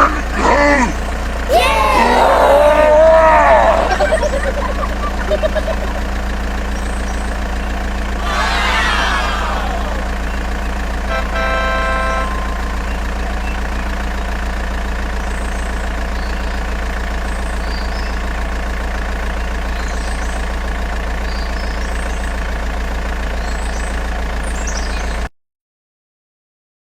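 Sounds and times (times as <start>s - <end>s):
low engine-like drone: 0.0s - 25.3s
horn-like tone: 11.1s - 13.0s.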